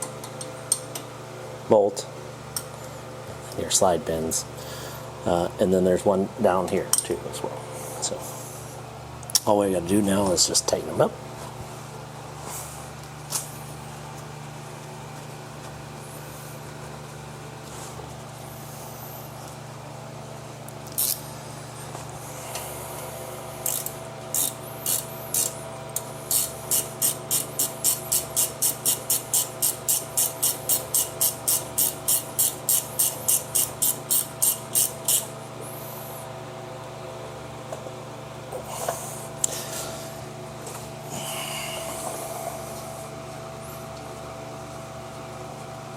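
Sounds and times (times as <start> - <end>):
hand ratchet clicking: 23.6 - 35.3.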